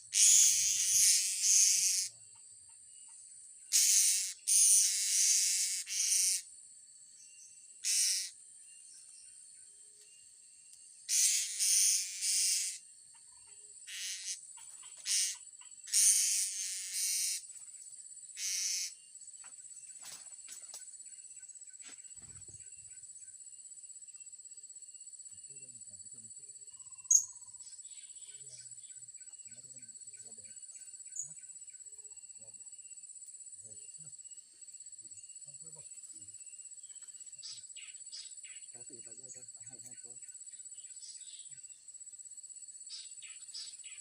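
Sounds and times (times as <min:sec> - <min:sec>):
insects buzzing in bursts: 0:00.0 - 0:02.2, 0:03.6 - 0:06.6, 0:07.7 - 0:08.5, 0:11.0 - 0:13.0, 0:13.8 - 0:19.3
high insect drone: 0:00.0 - 0:44.0.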